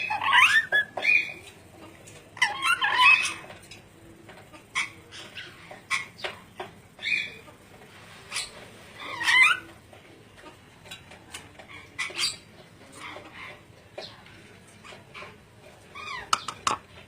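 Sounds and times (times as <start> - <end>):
parrot squawking and chattering: 0.0 - 1.5, 2.4 - 3.7, 4.6 - 7.4, 8.3 - 9.8, 11.6 - 13.8, 14.8 - 16.8.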